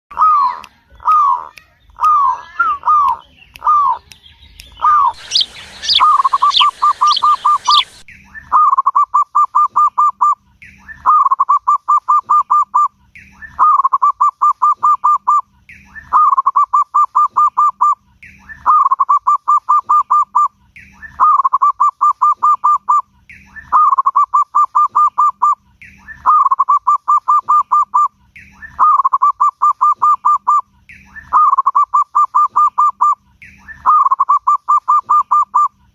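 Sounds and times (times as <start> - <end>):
high falling bird chirps: 0.1 - 8.2
dove cooing: 4.8 - 8.1.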